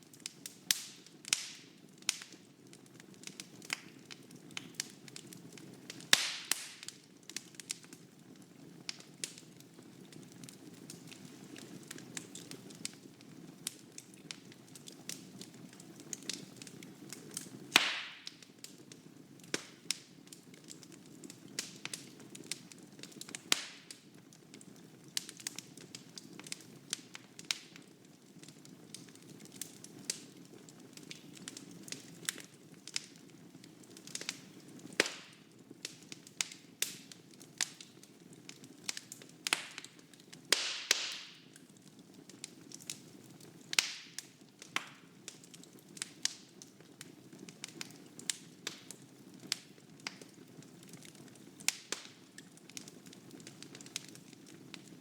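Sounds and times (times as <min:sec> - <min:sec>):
logs crackling and popping: 0:00.0 - 0:55.0.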